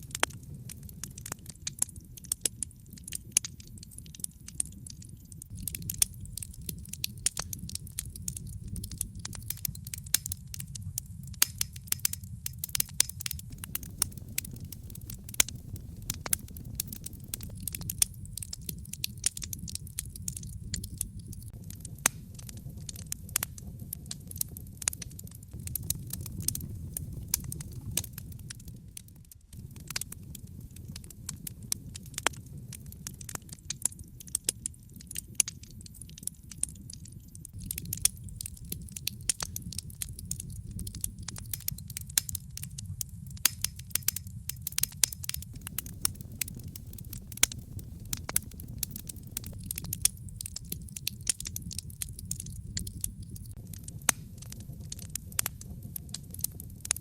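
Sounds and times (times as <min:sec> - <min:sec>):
fire crackling in fireplace: 0:00.0 - 0:57.0.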